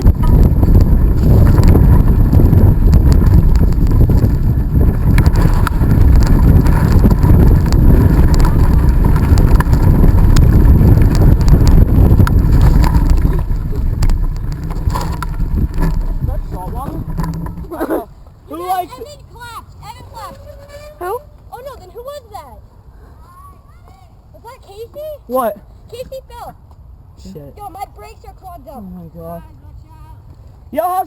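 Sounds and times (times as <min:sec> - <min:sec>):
bicycle clicks and rattles: 0:00.0 - 0:18.0
wind buffeting microphone: 0:00.0 - 0:22.6.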